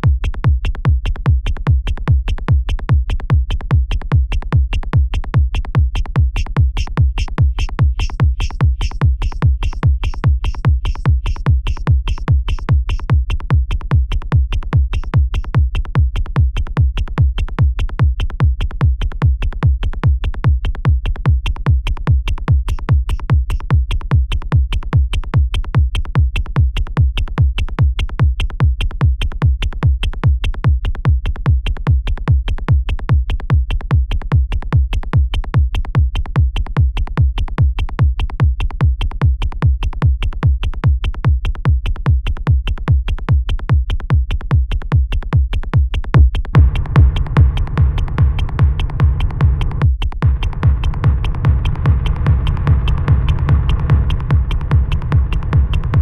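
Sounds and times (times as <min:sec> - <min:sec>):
heavy kick drum: 0:00.0 - 0:56.0
bright hi-hats: 0:46.6 - 0:56.0
synth bass line: 0:46.6 - 0:56.0.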